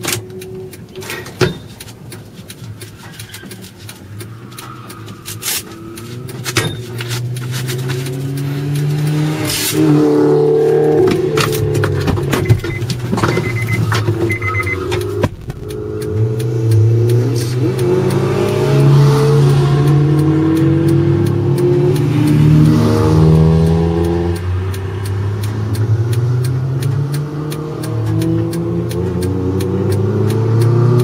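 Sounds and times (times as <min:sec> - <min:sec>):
car engine revving: 0:00.0 - 0:31.0
sharp knocks and clicks: 0:00.0 - 0:31.0
short high beeps: 0:12.4 - 0:16.9.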